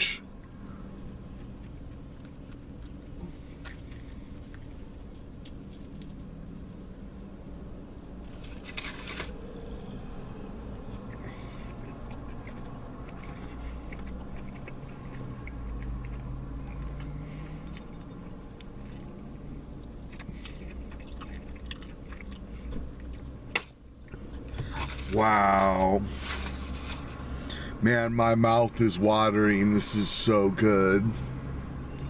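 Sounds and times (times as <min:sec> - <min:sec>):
steady low hum: 0:00.0 - 0:32.0
person chewing food: 0:00.4 - 0:25.2.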